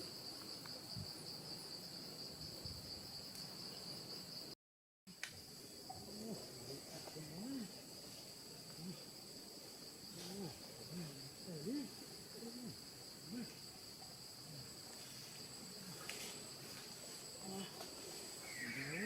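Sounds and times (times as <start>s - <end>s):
insects droning: 0.0s - 19.0s
short low rising and falling calls: 18.4s - 19.0s.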